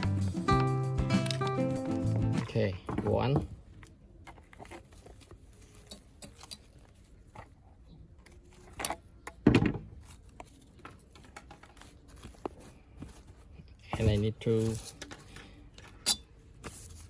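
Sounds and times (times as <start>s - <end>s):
small clicks and rustles: 10.0s - 17.0s.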